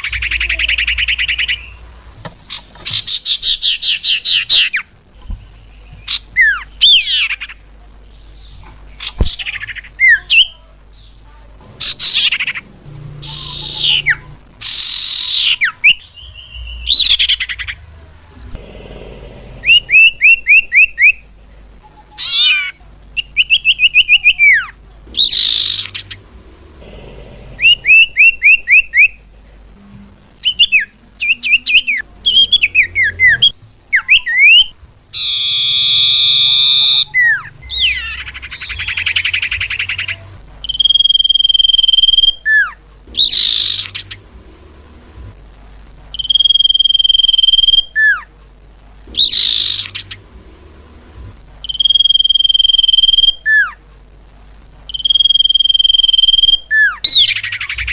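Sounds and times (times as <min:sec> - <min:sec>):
high chirping bird calls: 0:00.0 - 0:07.6, 0:08.4 - 0:17.9, 0:19.6 - 0:21.3, 0:22.0 - 0:26.4, 0:27.6 - 0:29.2, 0:30.4 - 0:44.3, 0:46.1 - 0:48.3, 0:49.1 - 0:50.3, 0:51.6 - 0:53.8, 0:54.9 - 0:57.9
harsh buzzy bird call: 0:11.8 - 0:17.8, 0:18.7 - 0:21.3, 0:22.1 - 0:29.2, 0:30.4 - 0:44.4, 0:49.1 - 0:50.3, 0:51.6 - 0:53.8, 0:54.9 - 0:57.9
rising and falling bird whistles: 0:19.6 - 0:21.2, 0:27.6 - 0:29.2, 0:30.4 - 0:44.2, 0:46.2 - 0:48.2, 0:49.2 - 0:50.2, 0:51.6 - 0:53.7, 0:54.9 - 0:57.9.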